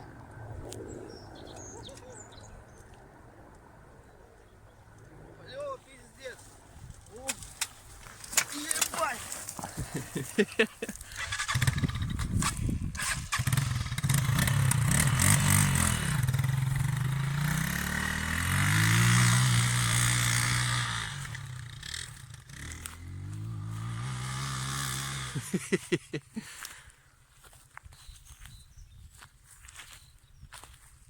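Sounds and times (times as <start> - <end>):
motorcycle engine revving: 11.1 - 25.6.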